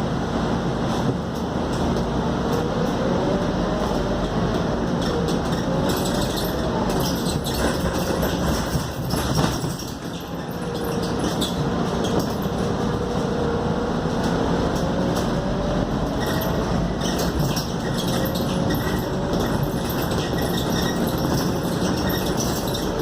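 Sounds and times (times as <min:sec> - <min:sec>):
bus engine and road noise: 0:00.0 - 0:23.0
body rattles: 0:05.1 - 0:12.9, 0:16.2 - 0:23.0.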